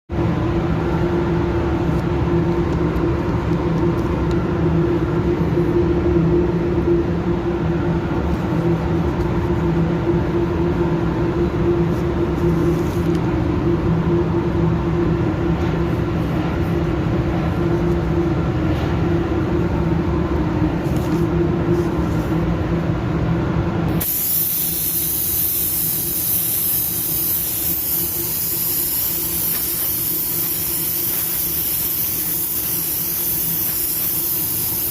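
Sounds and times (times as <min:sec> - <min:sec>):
paint spray gun hissing: 0:24.0 - 0:34.9.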